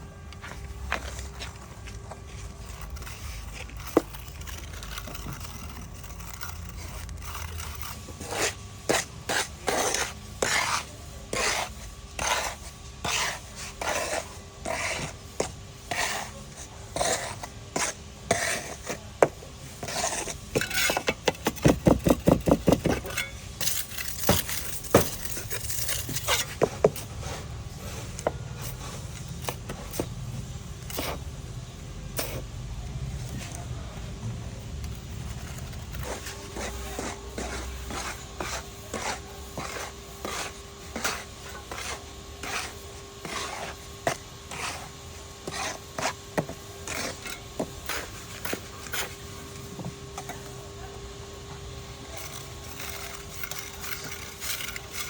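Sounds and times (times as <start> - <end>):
tool scraping wet cement: 0.9 - 30.2, 30.8 - 31.3, 32.2 - 32.5, 34.8 - 50.6, 51.9 - 55.0
rapid tapping on cement: 16.9 - 27.0, 52.2 - 55.0.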